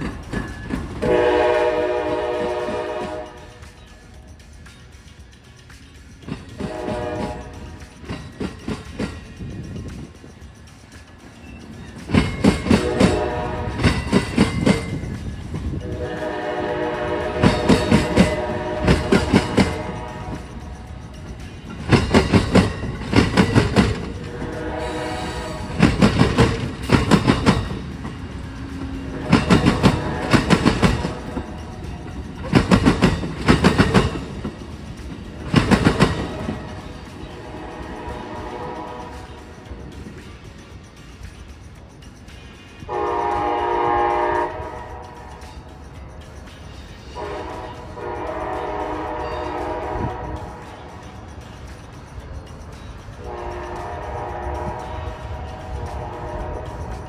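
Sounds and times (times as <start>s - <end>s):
train wheels clattering over crossing: 0.0s - 57.0s
train horn: 1.0s - 3.7s, 6.6s - 7.8s, 12.6s - 14.3s, 15.8s - 20.6s, 24.2s - 26.0s, 29.0s - 31.6s, 37.3s - 39.5s, 42.9s - 45.4s, 47.1s - 50.8s, 53.2s - 57.0s.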